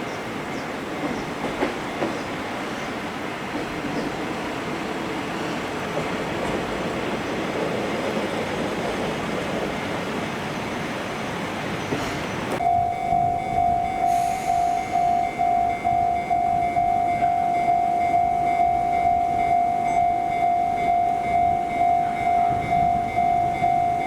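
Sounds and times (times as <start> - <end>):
diesel railcar rumbling past: 0.0 - 24.0
level-crossing warning bell: 12.6 - 24.0.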